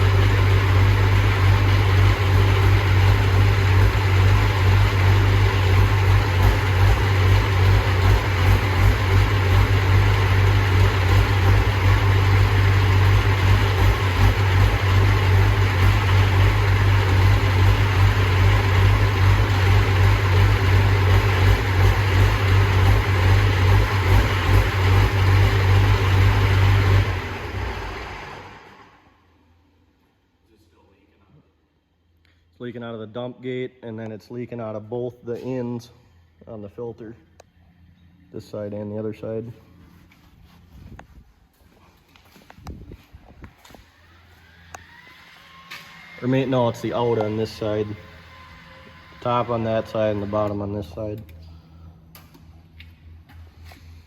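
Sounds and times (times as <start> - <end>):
tractor diesel engine idling: 0.0 - 28.4, 46.0 - 54.0.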